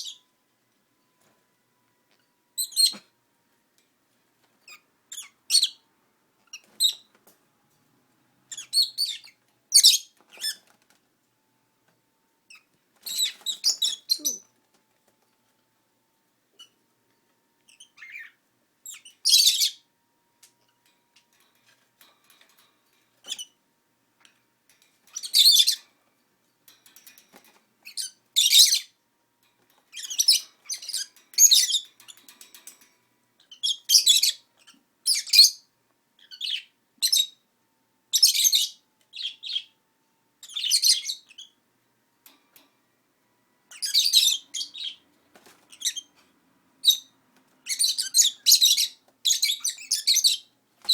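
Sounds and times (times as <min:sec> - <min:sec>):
lovebirds chirping and squawking: 0:00.0 - 0:00.3, 0:02.2 - 0:03.1, 0:04.6 - 0:05.8, 0:06.4 - 0:07.2, 0:08.5 - 0:10.8, 0:12.5 - 0:14.5, 0:16.6 - 0:16.8, 0:17.7 - 0:19.9, 0:21.2 - 0:23.6, 0:25.0 - 0:26.0, 0:26.8 - 0:29.0, 0:29.8 - 0:37.4, 0:38.1 - 0:39.8, 0:40.4 - 0:41.6, 0:43.7 - 0:50.9.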